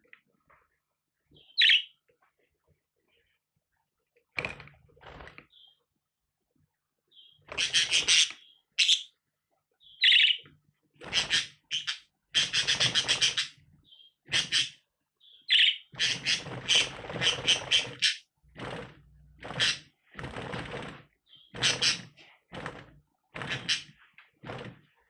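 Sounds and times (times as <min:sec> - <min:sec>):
budgerigar warbling: 0:14.3 - 0:14.8, 0:15.5 - 0:18.2.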